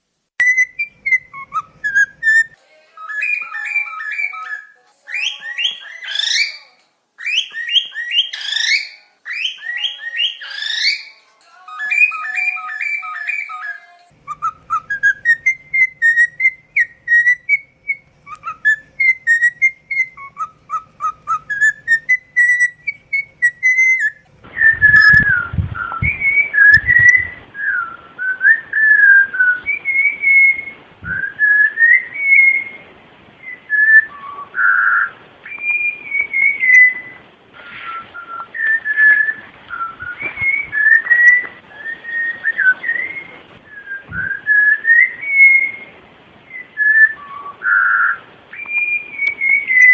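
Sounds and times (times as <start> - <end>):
steady hiss: 0.0 - 2.9, 14.0 - 49.9
songbird whistling: 0.4 - 49.9
low thumps: 24.2 - 27.6, 31.0 - 31.3, 44.0 - 44.4.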